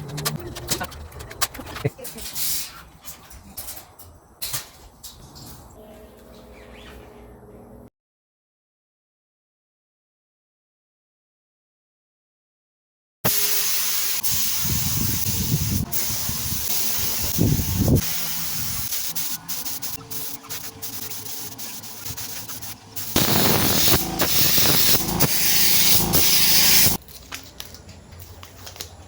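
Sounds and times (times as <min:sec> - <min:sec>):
steady hiss: 0:13.3 - 0:27.0.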